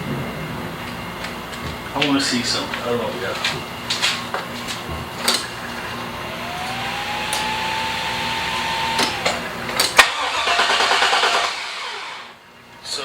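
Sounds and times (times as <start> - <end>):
small electric motor whining: 6.0 - 12.4
sharp clicks: 6.6 - 7.7, 8.8 - 11.9.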